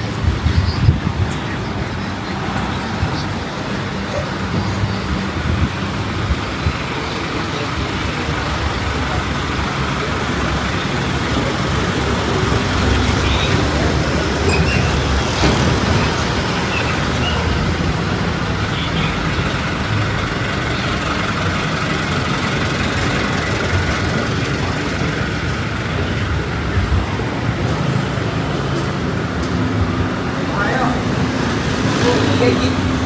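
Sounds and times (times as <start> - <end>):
wind rumble on microphone: 0.0 - 6.9
road traffic: 0.0 - 33.0.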